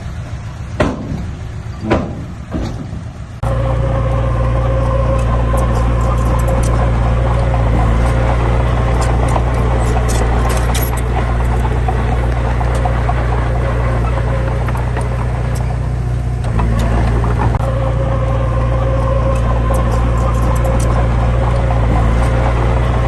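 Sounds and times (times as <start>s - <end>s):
diesel engine running under load: 0.0s - 23.0s
clicks and rattles: 5.2s - 17.7s, 19.3s - 23.0s.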